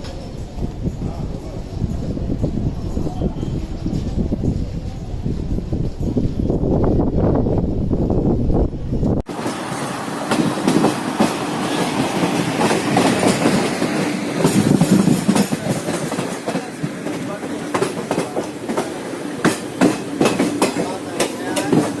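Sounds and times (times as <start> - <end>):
train rumble: 0.0 - 22.0
train wheels clattering over rail joints: 9.3 - 22.0.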